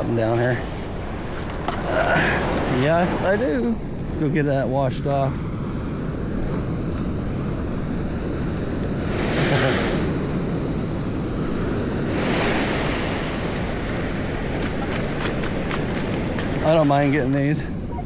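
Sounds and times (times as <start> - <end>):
ocean surf washing up beach: 0.0 - 4.5, 8.6 - 17.7
wind rumble on microphone: 0.0 - 18.0.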